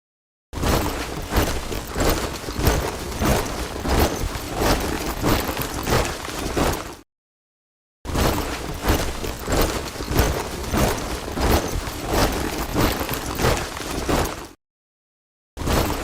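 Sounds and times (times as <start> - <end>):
soldiers marching boots: 0.7 - 7.0, 8.3 - 14.6.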